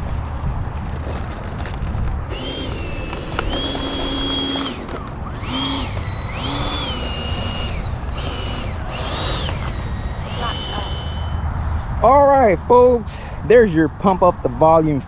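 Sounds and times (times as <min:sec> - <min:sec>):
steady low rumble: 0:00.0 - 0:13.6
model jet fan whine: 0:02.2 - 0:11.4.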